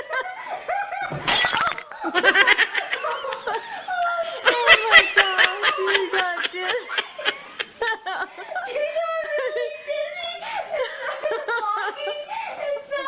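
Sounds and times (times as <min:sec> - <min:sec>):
people laughing: 0:02.0 - 0:08.2.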